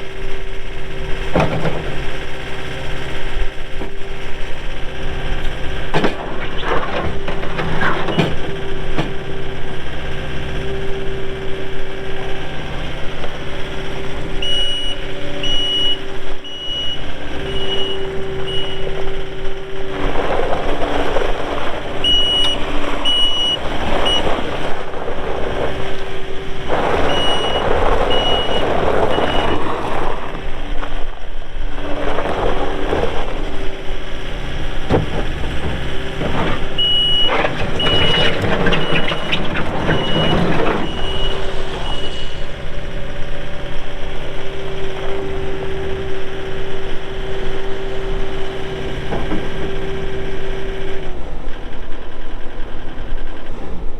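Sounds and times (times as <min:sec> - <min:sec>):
diesel engine running: 0:00.0 - 0:53.9
backup alarm beeping: 0:14.4 - 0:19.2, 0:22.0 - 0:24.6, 0:27.0 - 0:29.9, 0:35.6 - 0:42.6.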